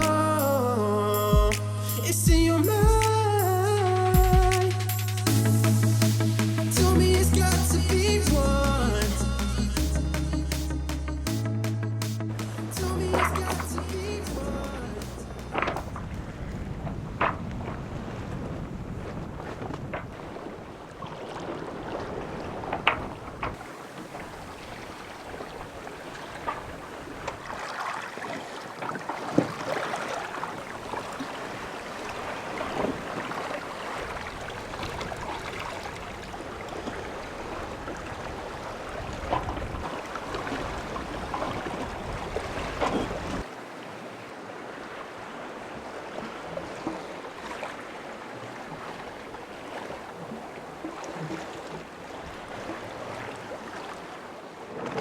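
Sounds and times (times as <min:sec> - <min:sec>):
sea water washing around boat: 0:00.0 - 0:02.2, 0:12.4 - 0:55.0
wind on microphone: 0:12.5 - 0:27.6, 0:30.5 - 0:43.5.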